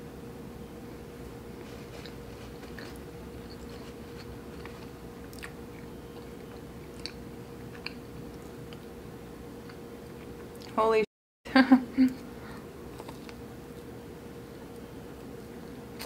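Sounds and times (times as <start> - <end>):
faint steady hum: 0.0 - 16.0
biting and chewing: 1.5 - 8.9, 12.8 - 14.0.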